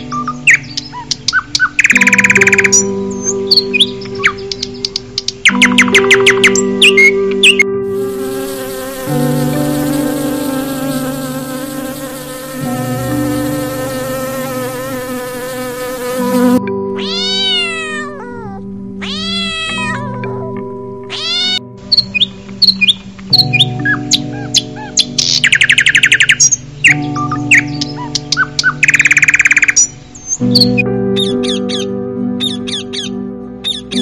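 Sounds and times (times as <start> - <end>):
soft background music: 0.0 - 34.0
honeybees buzzing: 7.9 - 16.7
cat meowing: 17.0 - 21.6.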